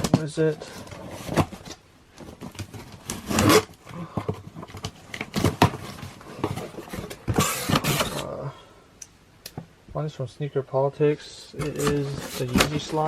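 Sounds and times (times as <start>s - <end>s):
packaging rustling and crinkling: 0.0s - 8.3s, 11.6s - 13.0s.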